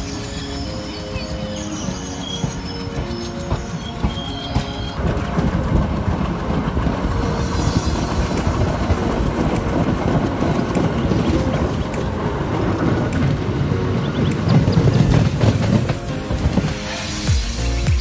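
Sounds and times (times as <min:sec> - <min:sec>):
train wheels clattering on rails: 0:00.0 - 0:17.4
background music: 0:00.0 - 0:18.0
wind noise: 0:05.0 - 0:16.9.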